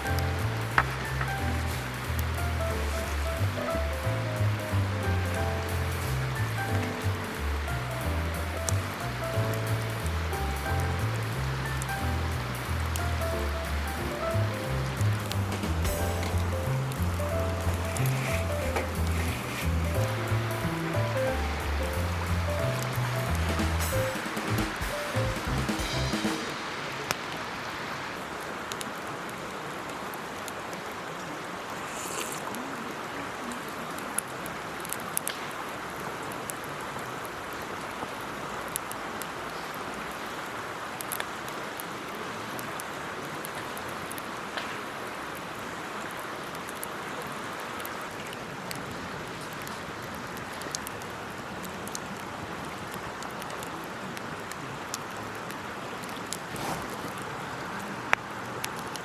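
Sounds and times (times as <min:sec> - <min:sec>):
fire rushing hiss: 0:00.0 - 0:05.0, 0:05.6 - 0:28.4, 0:31.7 - 0:32.5, 0:56.4 - 0:57.3.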